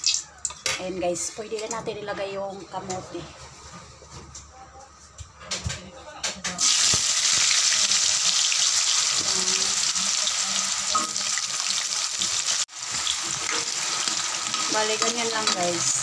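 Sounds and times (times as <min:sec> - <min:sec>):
frying sizzle: 0:00.0 - 0:00.5, 0:06.6 - 0:16.0.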